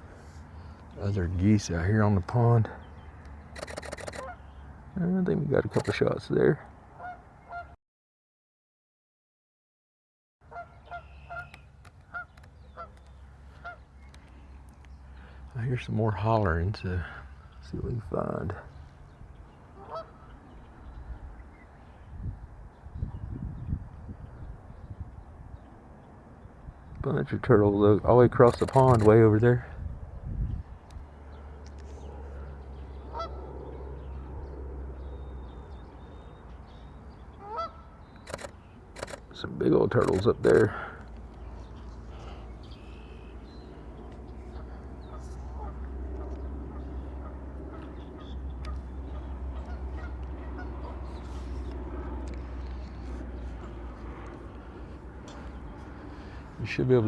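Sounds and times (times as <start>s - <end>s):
faint goose calls: 7.0s - 7.8s, 10.5s - 13.8s, 19.8s - 20.4s, 32.2s - 33.4s, 37.4s - 38.5s, 44.5s - 51.2s
geese honking: 19.8s - 20.3s, 33.1s - 33.4s, 37.4s - 37.9s.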